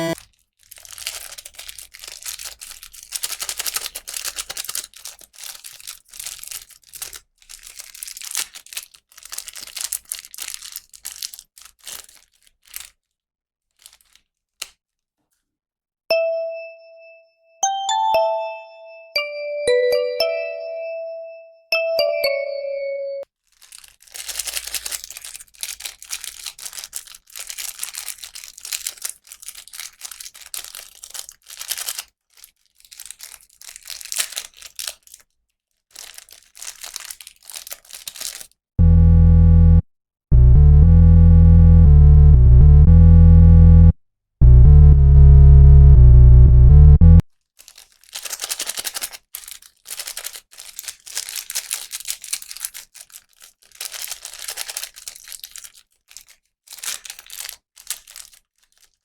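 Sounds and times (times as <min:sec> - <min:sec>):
plastic packaging crinkling and tearing: 0:00.1 - 0:15.4, 0:23.4 - 0:38.6, 0:47.4 - 0:59.0
electronic music with heavy bass: 0:38.8 - 0:47.2.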